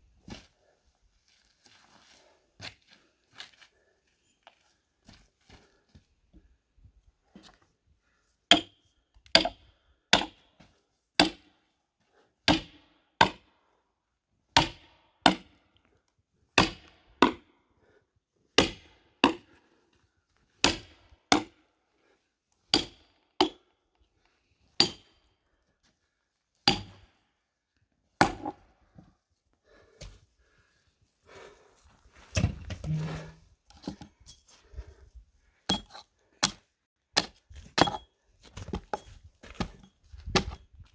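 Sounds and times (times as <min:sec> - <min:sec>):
hammer striking axe in log: 0:32.4 - 0:33.4.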